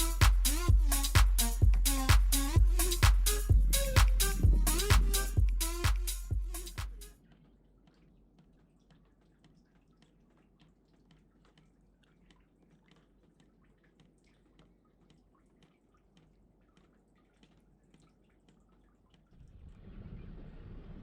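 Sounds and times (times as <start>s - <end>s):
low steady hum: 0.0s - 10.4s, 19.4s - 21.0s.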